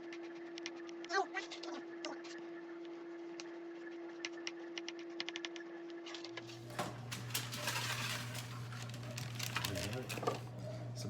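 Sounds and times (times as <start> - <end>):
rustling handling noise: 6.5 - 10.6.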